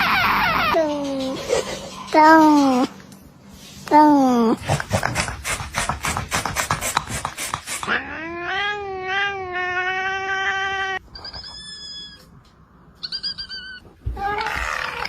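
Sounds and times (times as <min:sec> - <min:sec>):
cat high-pitched cries: 0:00.0 - 0:01.3, 0:07.9 - 0:12.3, 0:13.0 - 0:15.0.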